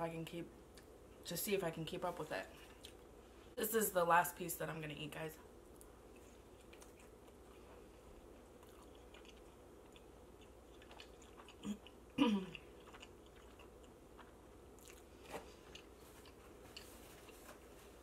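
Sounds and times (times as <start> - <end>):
chewing pizza: 5.7 - 18.0.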